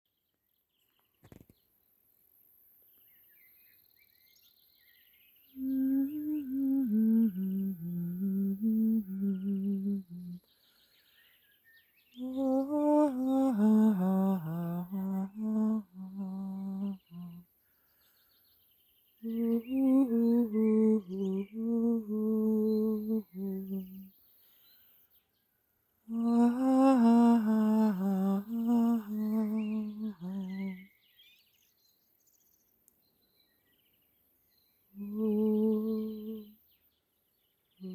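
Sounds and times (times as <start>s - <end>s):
faint birdsong: 0.1s - 37.9s
person humming: 5.6s - 10.4s, 12.2s - 17.4s, 19.2s - 24.1s, 26.1s - 30.9s, 35.0s - 36.6s.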